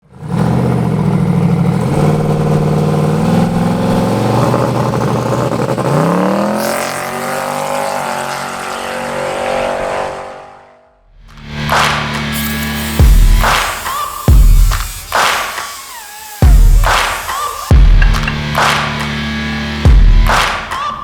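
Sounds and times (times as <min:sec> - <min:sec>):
car engine running under load: 0:00.0 - 0:07.3, 0:12.7 - 0:21.0.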